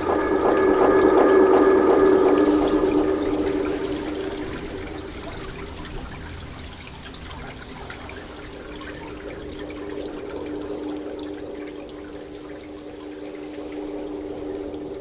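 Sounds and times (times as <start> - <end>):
low steady hum: 0.0 - 6.8.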